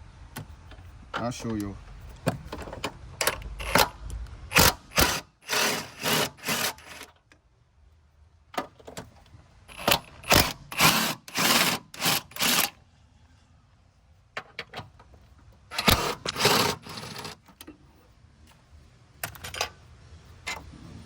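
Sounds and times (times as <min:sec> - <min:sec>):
metal tools scraping metal: 0:15.7 - 0:17.4.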